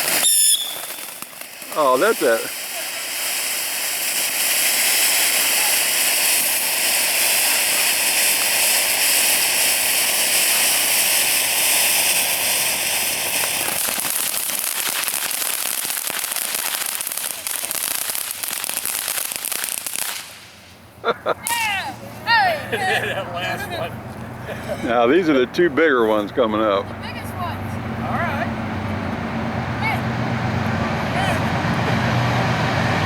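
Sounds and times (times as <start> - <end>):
firework fountain hissing: 0.0 - 28.4
firework crackling: 0.0 - 33.0
faint whistle: 0.2 - 0.8.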